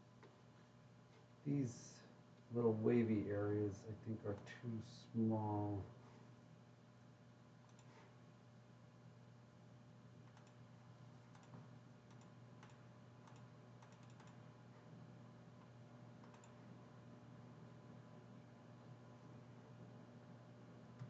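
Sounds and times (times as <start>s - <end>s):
low steady hum: 0.0s - 21.0s
mouse and keyboard clicking: 11.3s - 14.4s, 16.2s - 16.6s.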